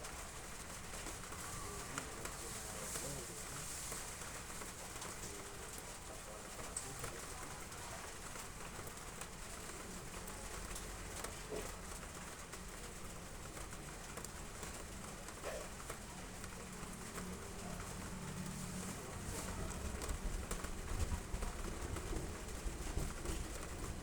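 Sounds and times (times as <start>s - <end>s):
heavy rain on roof tiles: 0.0s - 24.0s.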